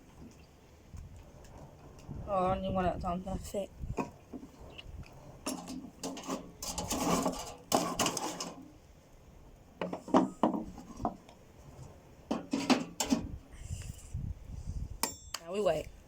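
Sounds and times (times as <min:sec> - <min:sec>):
metal cookware scraping and clattering: 0:05.3 - 0:08.7, 0:12.3 - 0:13.4
metal cookware knocks and clicks: 0:12.3 - 0:13.2.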